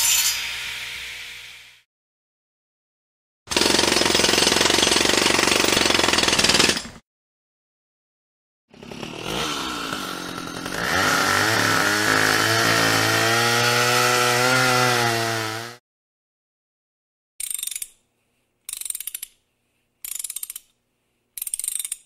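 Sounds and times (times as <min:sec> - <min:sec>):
rattling power tool: 0:03.5 - 0:07.0, 0:08.7 - 0:13.1.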